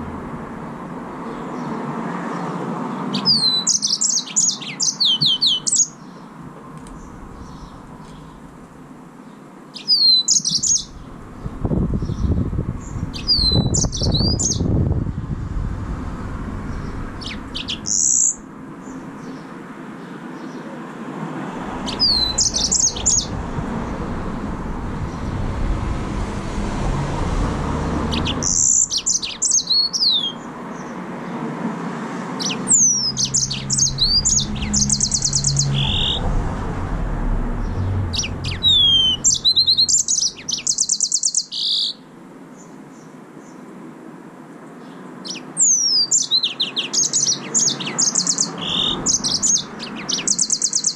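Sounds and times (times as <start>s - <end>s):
low background rumble: 0.0s - 1.4s, 6.4s - 9.2s, 10.8s - 19.2s, 21.6s - 29.0s, 33.2s - 40.5s
finch singing: 3.1s - 6.3s, 9.3s - 14.7s, 16.7s - 20.6s, 21.8s - 23.4s, 28.1s - 30.9s, 32.4s - 36.3s, 37.6s - 42.0s, 44.8s - 50.9s.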